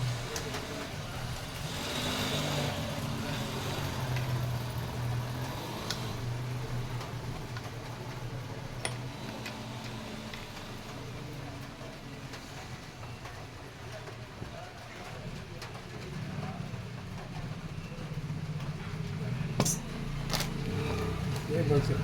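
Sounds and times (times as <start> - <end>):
tools clicking on metal: 8.8 - 10.0.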